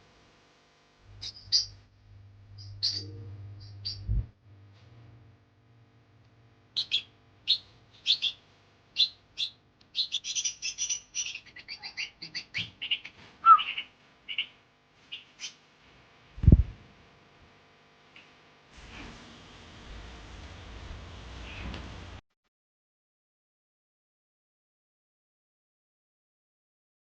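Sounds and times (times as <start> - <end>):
baby bird chirping: 1.2 - 1.7, 2.6 - 4.1, 6.8 - 8.4, 9.0 - 14.5.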